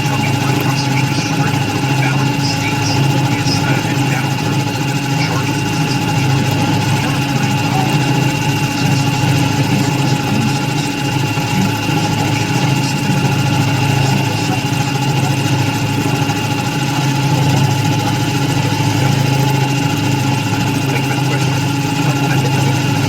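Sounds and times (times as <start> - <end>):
machine tool humming: 0.0 - 23.0.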